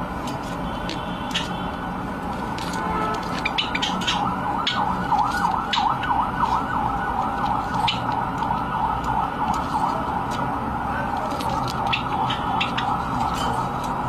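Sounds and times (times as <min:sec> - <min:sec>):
birds chirping: 0:03.2 - 0:05.9, 0:11.9 - 0:13.0.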